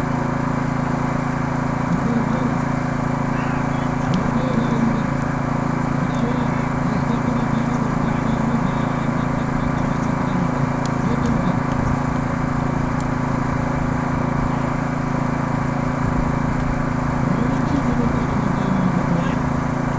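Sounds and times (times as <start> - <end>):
steady engine hum: 0.0 - 19.9
faint voices: 0.8 - 19.9.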